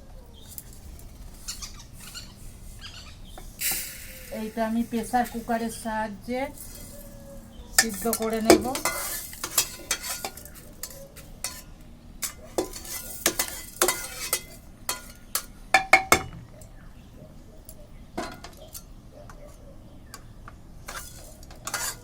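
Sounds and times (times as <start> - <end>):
utensils and pots clinking: 3.4 - 5.8, 6.4 - 16.4, 17.7 - 19.5, 20.8 - 22.0.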